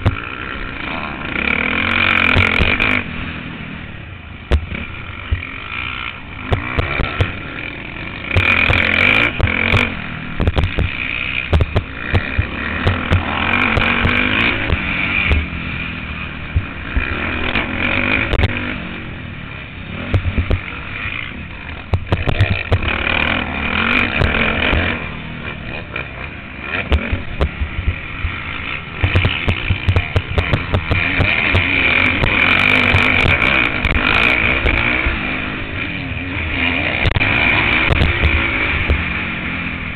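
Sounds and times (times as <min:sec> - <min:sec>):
motocross bike engine revving: 0:00.0 - 0:39.9
bike knocks and thumps: 0:09.4 - 0:15.5, 0:20.1 - 0:20.6, 0:29.0 - 0:31.7.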